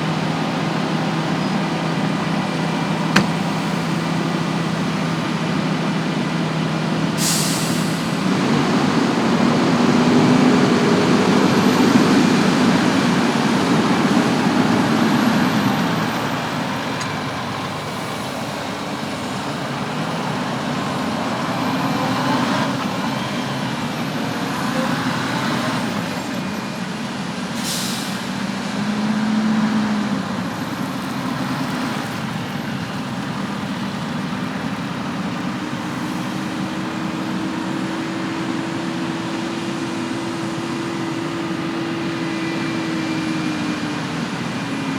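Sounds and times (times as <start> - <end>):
diesel machinery engine: 0.0 - 44.9
air brake hiss: 7.2 - 8.2, 27.6 - 28.3.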